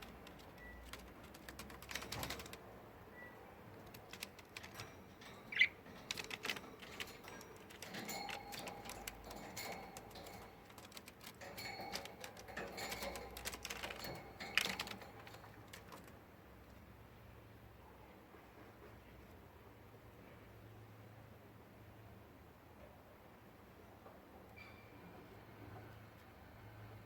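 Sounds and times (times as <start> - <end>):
beak clicks and feather rustles: 0.0 - 2.7, 3.6 - 16.4.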